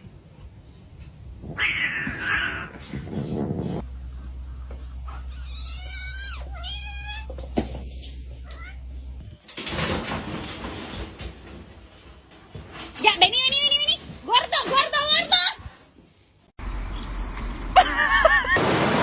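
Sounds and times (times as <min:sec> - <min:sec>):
cat meowing: 0:01.6 - 0:02.8, 0:05.1 - 0:09.2
low steady hum: 0:03.8 - 0:09.2.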